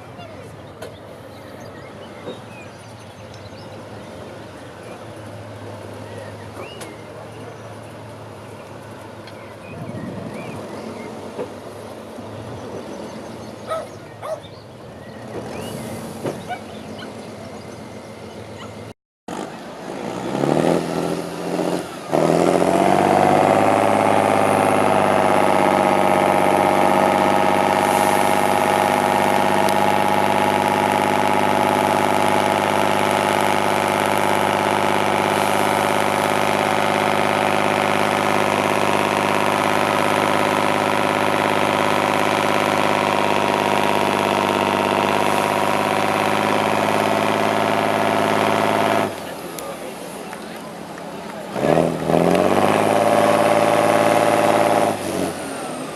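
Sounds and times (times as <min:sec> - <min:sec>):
truck engine revving: 0:15.0 - 0:55.9.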